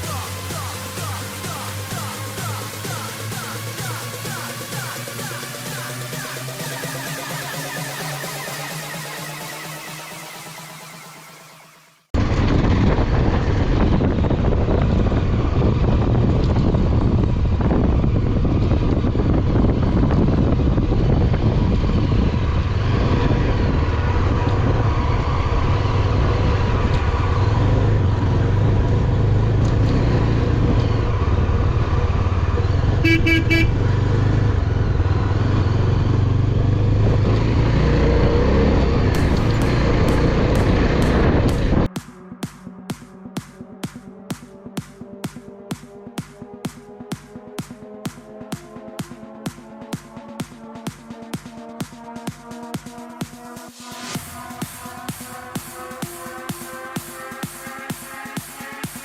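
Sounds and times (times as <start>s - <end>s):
motorcycle engine: 0.0s - 59.0s
wind noise on microphone: 12.2s - 42.0s
vehicle horn toot: 32.9s - 33.9s.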